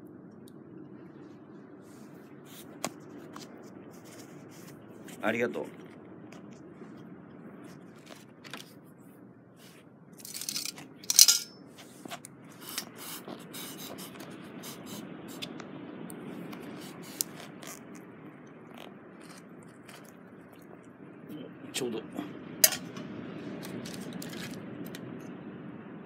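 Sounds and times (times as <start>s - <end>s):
crackling rustle: 0.2s - 21.2s, 22.7s - 25.4s
metal cookware clinking: 10.3s - 11.6s, 22.6s - 22.9s.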